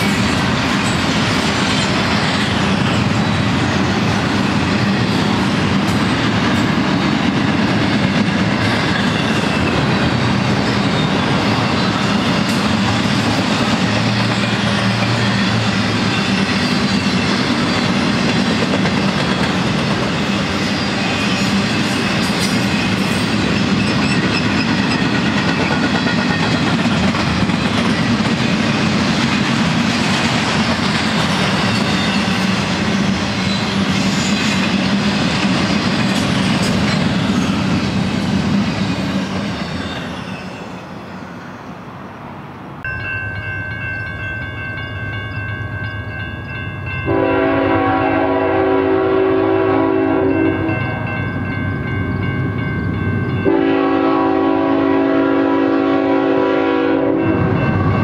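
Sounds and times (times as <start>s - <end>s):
steel wheels on rails: 0.0s - 41.7s
freight train cars rolling past: 0.0s - 58.0s.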